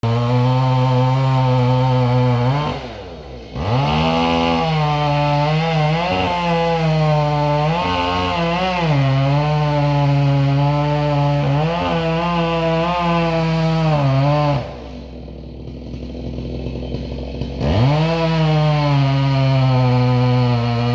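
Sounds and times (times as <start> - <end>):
chainsaw cutting wood: 0.0 - 20.9.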